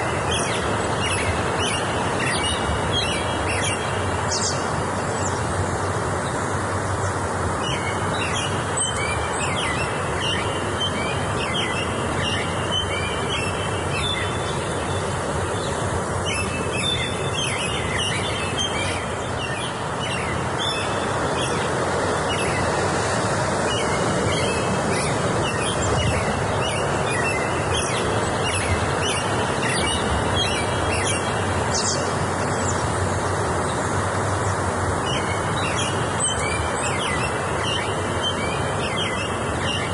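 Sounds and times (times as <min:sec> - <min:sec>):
rushing background noise: 0:00.0 - 0:39.9
birds chirping and singing: 0:07.6 - 0:33.8, 0:34.5 - 0:39.9.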